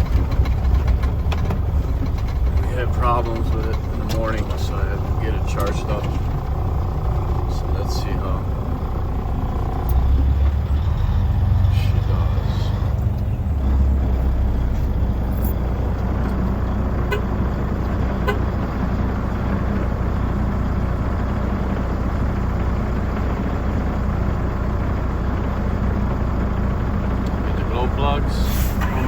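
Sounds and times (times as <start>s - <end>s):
vehicle engine idling: 0.0s - 29.0s.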